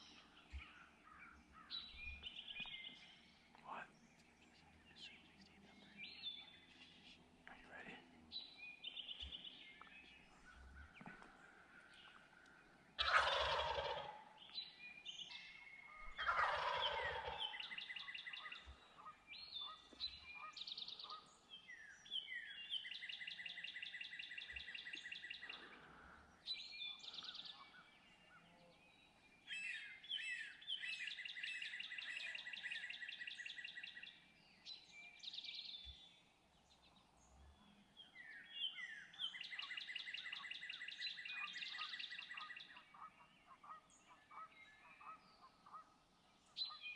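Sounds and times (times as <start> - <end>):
faint bird calls: 0.0 - 15.0, 36.8 - 46.9
turkey gobbling: 13.0 - 14.3, 16.2 - 17.8.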